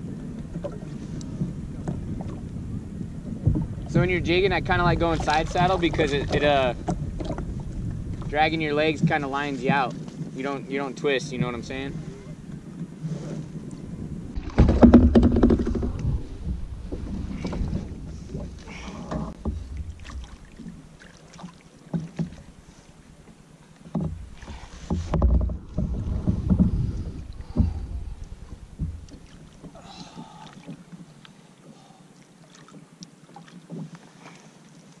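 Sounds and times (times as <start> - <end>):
wind buffeting microphone: 0.0 - 21.0, 24.1 - 30.0
gear knocking against kayak hull: 3.3 - 10.2, 14.3 - 22.6, 23.8 - 30.8.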